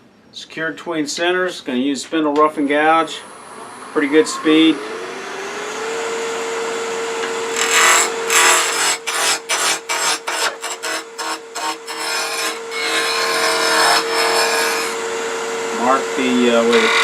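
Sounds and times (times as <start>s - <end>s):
wood lathe motor hum: 2.9s - 17.0s
gouge cutting wood: 7.2s - 15.0s, 16.6s - 17.0s.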